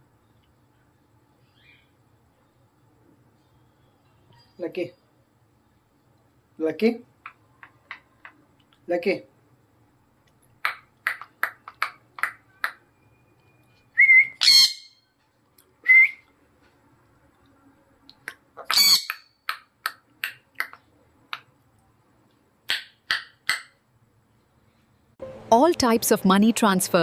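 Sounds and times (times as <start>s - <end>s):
parrot rising whistles: 14.0s - 15.0s, 15.8s - 16.2s
parrot chirping: 14.0s - 15.1s, 18.6s - 19.4s
parrot harsh squawks: 14.3s - 15.0s, 18.6s - 19.3s.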